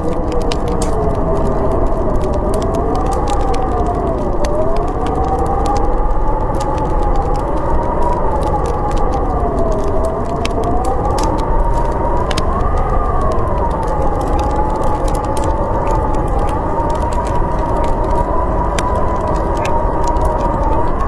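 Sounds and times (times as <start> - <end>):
wind howling: 0.0 - 21.0
wood fire crackling: 0.0 - 21.0.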